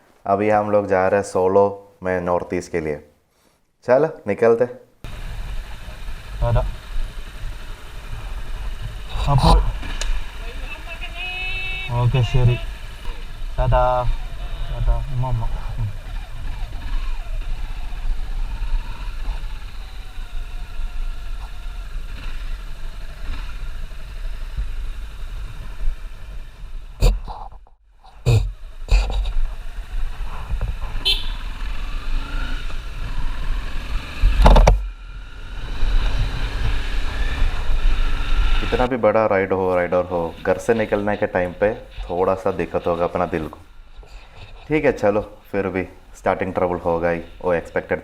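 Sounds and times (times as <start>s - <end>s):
road rumble: 5.0s - 48.0s
motorcycle engine running: 5.1s - 27.3s, 28.3s - 38.9s.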